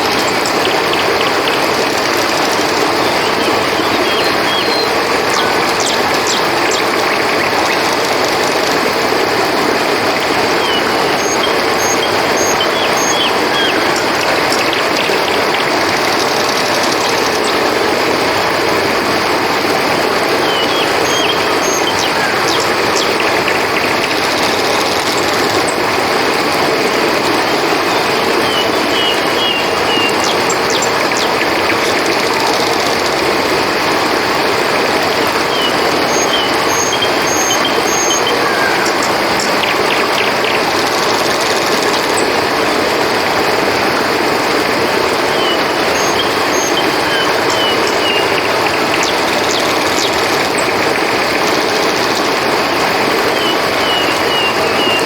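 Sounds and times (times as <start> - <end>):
short chirping calls: 0.0 - 8.8, 10.2 - 17.8, 20.3 - 25.7, 28.0 - 33.1, 35.4 - 42.3, 44.9 - 52.0, 53.2 - 55.0
crickets chorus: 0.0 - 55.0
river water rushing: 0.0 - 55.0.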